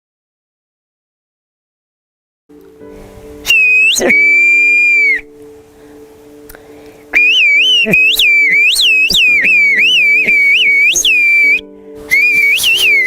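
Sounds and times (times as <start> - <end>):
soft musical drone: 2.5 - 13.0
loud human whistling: 3.4 - 5.3, 7.1 - 13.0.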